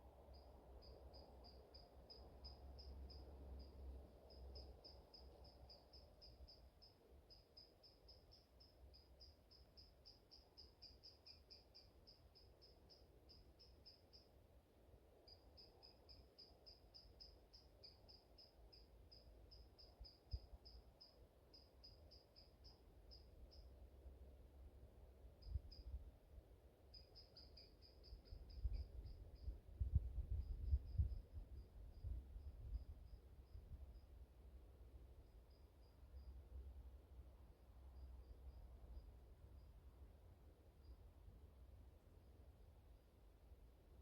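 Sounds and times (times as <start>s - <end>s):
faint high-pitched chirping: 0.2s - 14.4s, 15.2s - 23.8s, 25.4s - 26.1s, 26.9s - 34.2s, 35.2s - 36.6s, 37.8s - 39.9s, 40.7s - 41.1s
soft wind rumble: 28.0s - 35.5s.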